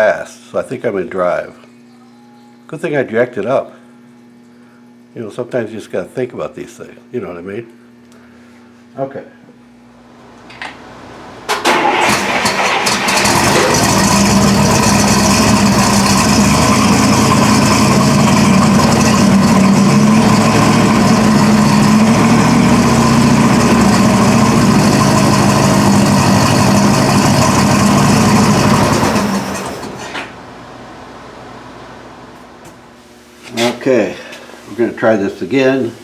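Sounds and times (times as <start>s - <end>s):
car engine running: 11.2s - 30.7s.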